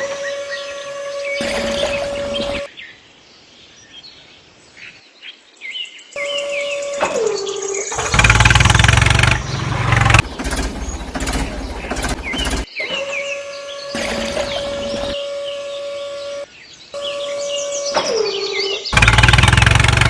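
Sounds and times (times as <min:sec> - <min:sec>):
loud motor-like buzzing: 0:00.0 - 0:02.7, 0:06.2 - 0:20.0
birds chirping: 0:00.0 - 0:20.0.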